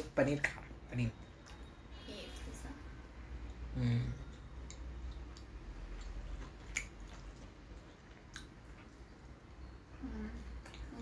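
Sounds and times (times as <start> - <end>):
people chewing wetly: 3.4 - 9.4, 10.2 - 11.0
sharp mouth clicks: 3.5 - 7.3.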